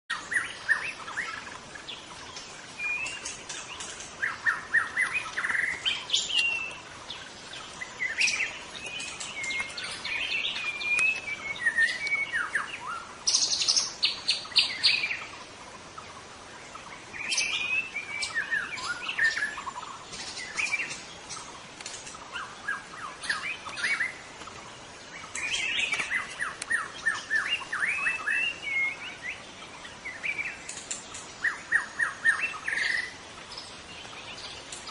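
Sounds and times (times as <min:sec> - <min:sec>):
bird singing whistles and runs: 0:08.1 - 0:12.7.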